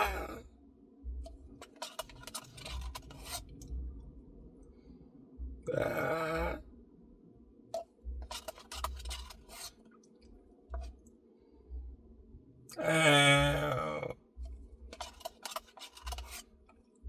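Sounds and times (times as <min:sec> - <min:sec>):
loud drawn-out vocal sound: 0:00.0 - 0:00.4, 0:05.7 - 0:06.6, 0:12.7 - 0:14.2.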